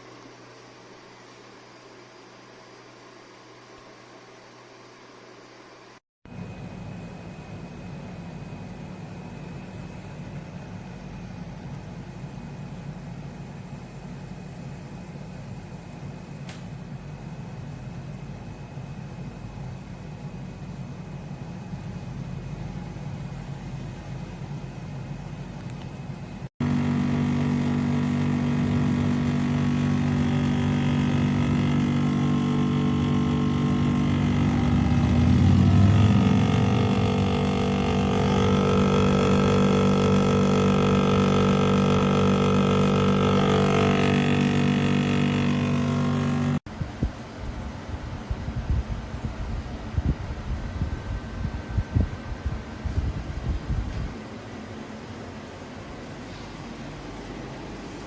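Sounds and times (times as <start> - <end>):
droning hum: 6.3 - 46.7
air conditioner rushing: 20.0 - 46.7.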